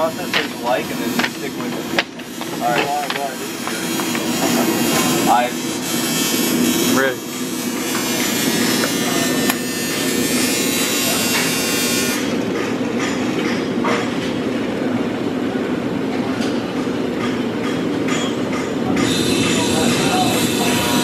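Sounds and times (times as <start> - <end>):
welding arc buzzing: 0.0 - 12.7, 19.0 - 21.0.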